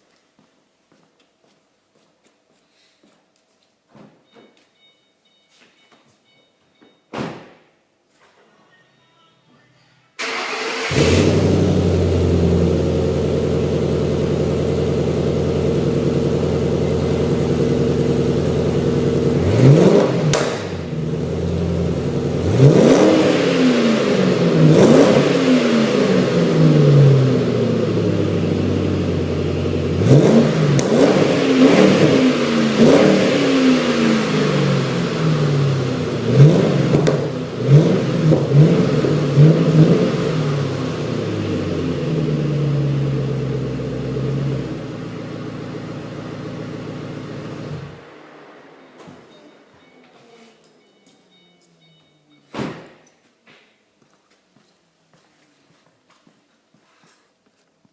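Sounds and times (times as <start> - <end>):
car engine idling and revving: 10.2 - 49.1.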